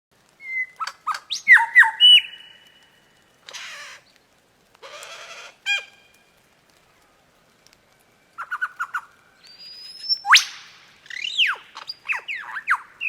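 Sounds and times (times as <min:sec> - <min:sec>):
harsh rasping bird calls: 0:00.4 - 0:04.2, 0:04.8 - 0:06.1, 0:08.4 - 0:13.0.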